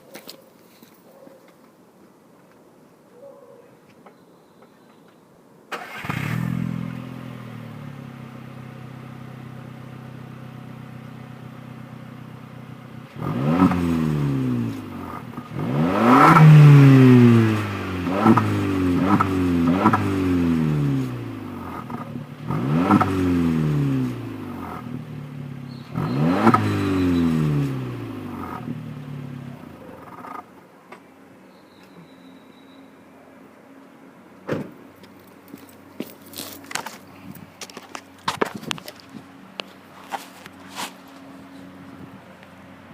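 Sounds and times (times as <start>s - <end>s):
car engine revving: 12.8s - 30.4s.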